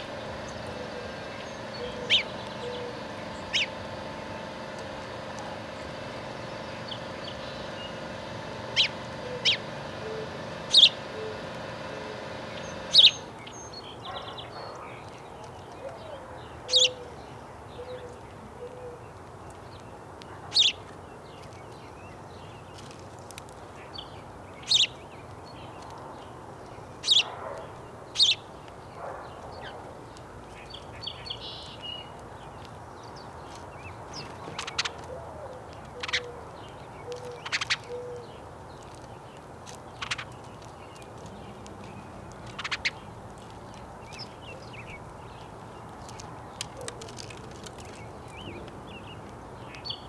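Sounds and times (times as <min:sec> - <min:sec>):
sharp high bird chirps: 0:00.0 - 0:03.8, 0:05.4 - 0:14.2.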